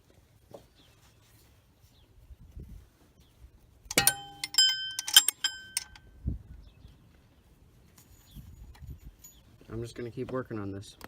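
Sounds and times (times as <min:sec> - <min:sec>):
wrenches clinking on metal: 0:03.9 - 0:06.0.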